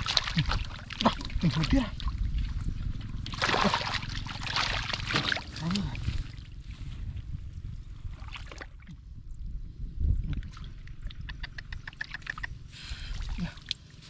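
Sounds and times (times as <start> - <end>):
splashing in muddy water: 0.0 - 6.6, 8.0 - 9.0, 10.3 - 14.0
steady low rumble: 0.0 - 14.0.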